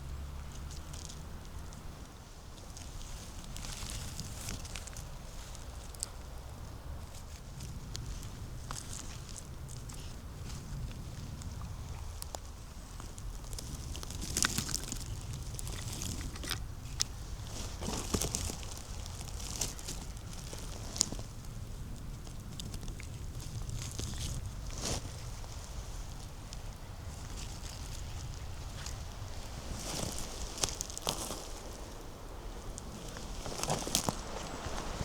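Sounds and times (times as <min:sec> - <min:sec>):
footsteps crunching dry leaves: 0:12.4 - 0:21.4, 0:22.6 - 0:35.0.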